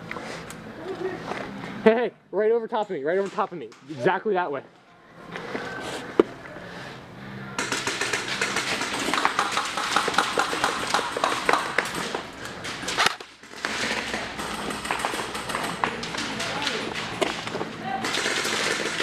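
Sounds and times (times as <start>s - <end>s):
rapid airsoft gun clicks and rattles: 7.6s - 19.0s.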